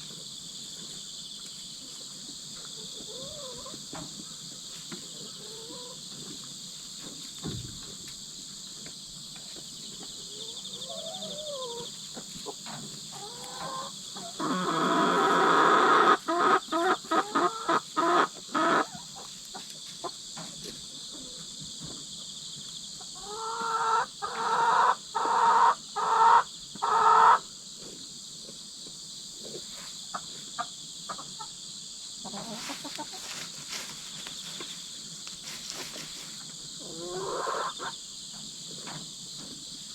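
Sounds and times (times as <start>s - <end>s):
insects chirping: 0.0s - 39.9s
hens squawking: 13.1s - 19.3s, 36.8s - 37.9s.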